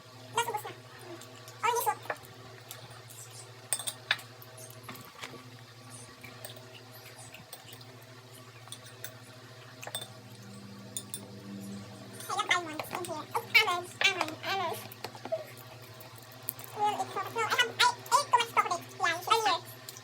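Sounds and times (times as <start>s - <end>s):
steady low hum: 0.0s - 20.0s
utensils clinking on dishes: 3.7s - 4.3s, 9.8s - 11.3s.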